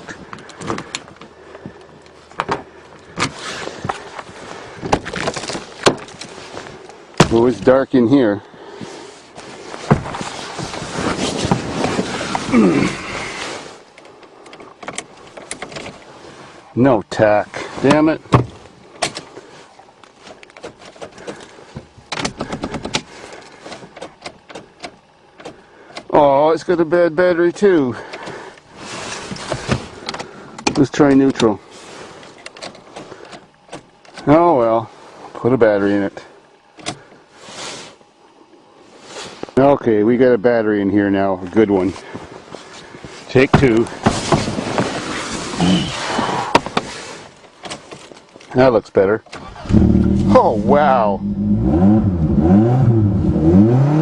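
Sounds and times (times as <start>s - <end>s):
car door handle and latch clicking: 22.1s - 23.1s.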